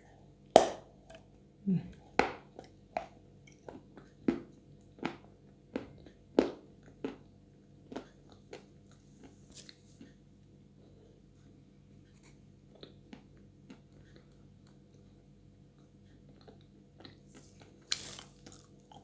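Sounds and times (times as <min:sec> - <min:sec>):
wet chewing and mouth clicks: 0:02.5 - 0:10.2, 0:12.1 - 0:19.0.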